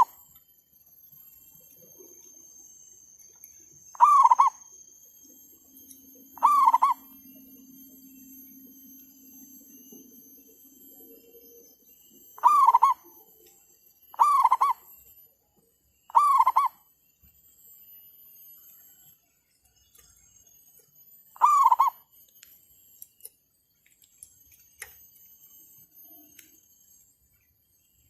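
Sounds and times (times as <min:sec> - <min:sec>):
faint low hum: 0:00.0 - 0:28.0
dove cooing: 0:03.9 - 0:04.6, 0:06.2 - 0:07.2, 0:12.4 - 0:13.1, 0:14.2 - 0:14.8, 0:16.1 - 0:16.8, 0:21.4 - 0:22.0.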